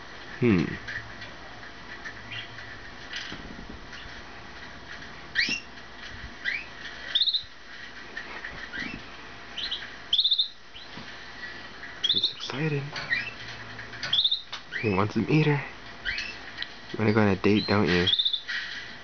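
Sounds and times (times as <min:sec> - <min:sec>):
canary chirps and trills: 0:02.0 - 0:02.8, 0:05.2 - 0:05.8, 0:06.4 - 0:07.6, 0:08.2 - 0:18.9.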